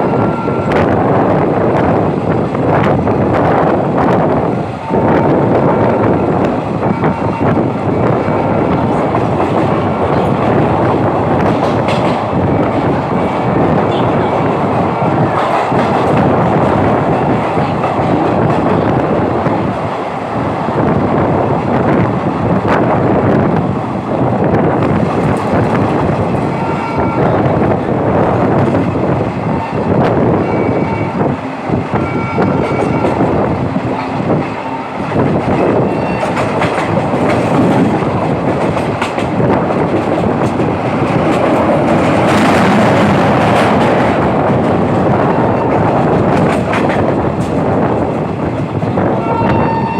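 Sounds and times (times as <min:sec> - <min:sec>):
train rumbling: 0:00.0 - 0:49.9
wheels clacking over rail joints: 0:08.2 - 0:20.1, 0:32.5 - 0:49.5.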